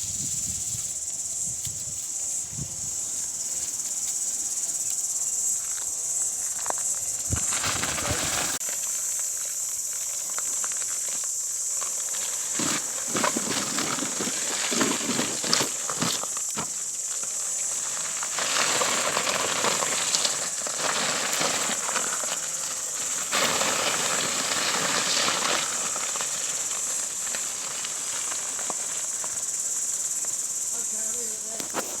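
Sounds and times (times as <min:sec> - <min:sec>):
steady high-pitched hiss: 0:00.0 - 0:32.0
tracks rumbling over rough ground: 0:04.5 - 0:08.6.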